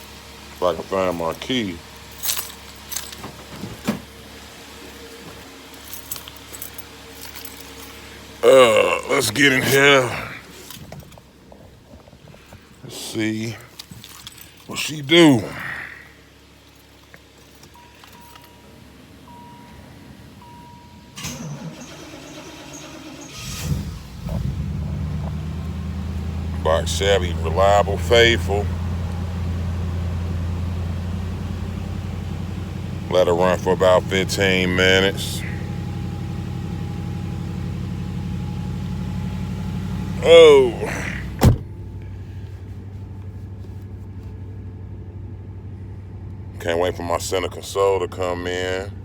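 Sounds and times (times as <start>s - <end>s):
car engine idling: 0.0s - 49.0s
starter motor cranking: 21.2s - 25.7s
car key clicks and rustles: 40.9s - 42.0s.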